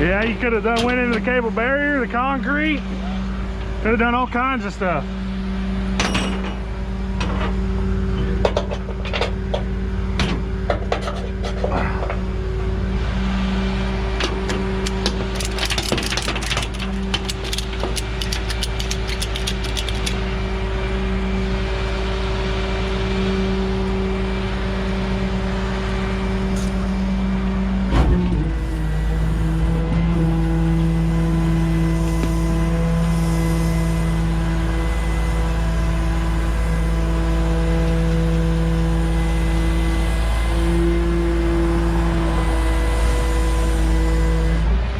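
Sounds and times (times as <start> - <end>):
truck engine humming: 0.0 - 44.9
rattling clicks: 14.8 - 20.2.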